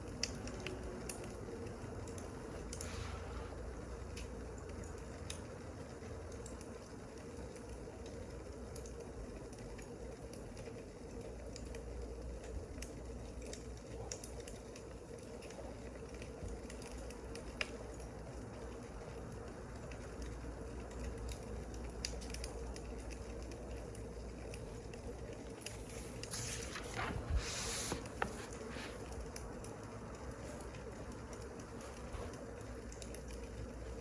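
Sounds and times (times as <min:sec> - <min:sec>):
wood fire crackling and popping: 0:03.8 - 0:26.6, 0:28.0 - 0:34.0
rustling hiss: 0:25.6 - 0:29.3.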